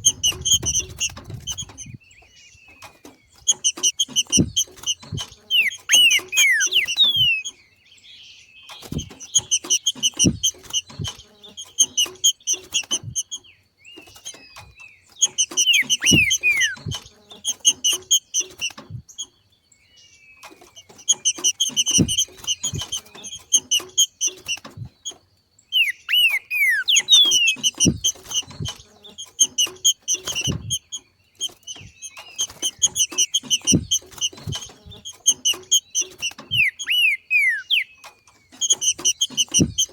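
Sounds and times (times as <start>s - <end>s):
bird chattering call: 3.4s - 7.6s, 15.2s - 18.8s, 25.7s - 39.9s
soft low knocks: 21.3s - 25.2s, 27.2s - 31.0s.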